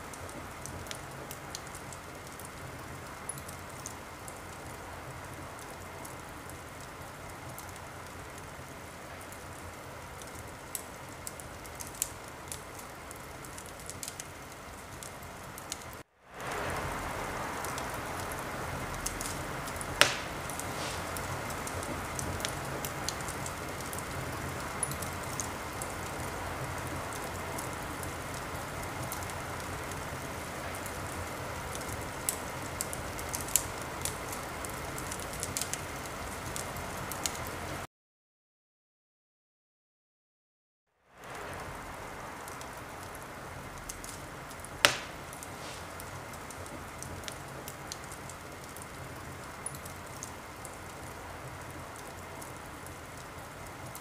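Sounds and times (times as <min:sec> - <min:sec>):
wood fire crackling: 0:00.0 - 0:37.8, 0:41.1 - 0:54.0
sharp fire pop: 0:19.1 - 0:22.5, 0:44.8 - 0:46.0.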